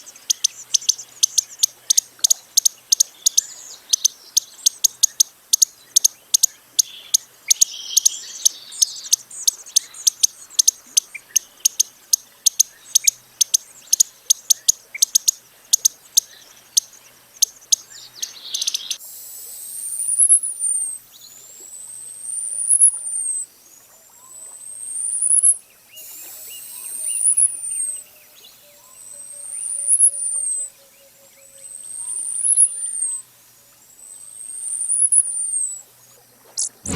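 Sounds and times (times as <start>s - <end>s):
high thin bird whistles: 36.6s - 36.9s.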